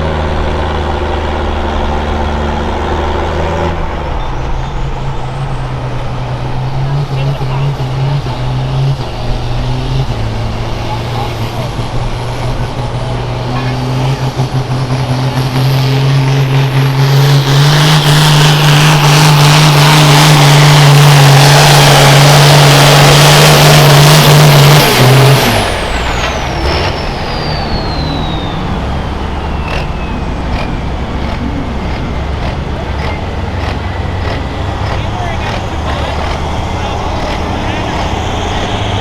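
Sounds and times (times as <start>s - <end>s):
diesel tractor at full throttle: 0.0s - 39.0s
turbocharger whistle falling: 25.6s - 30.6s.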